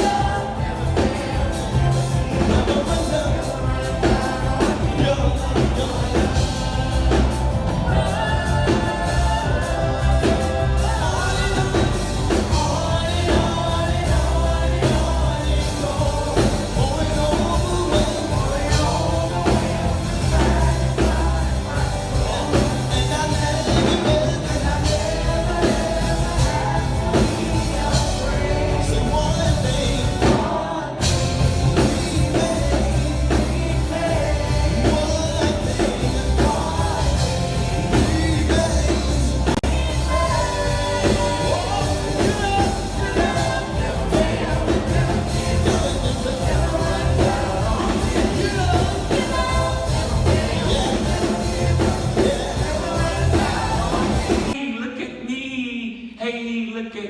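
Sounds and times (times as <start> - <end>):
rock-pop song with vocals: 0.0 - 57.0.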